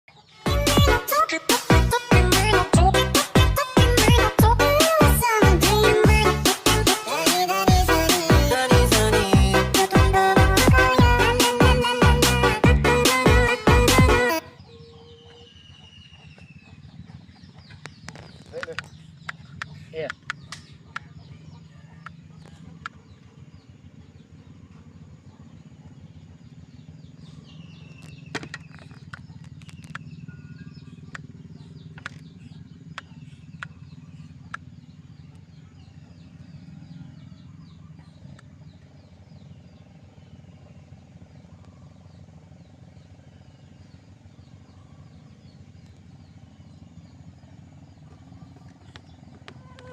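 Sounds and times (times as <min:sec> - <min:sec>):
birds chirping: 0:00.1 - 0:49.9
steady low hum: 0:07.7 - 0:49.9
sharp clicks: 0:17.8 - 0:21.1.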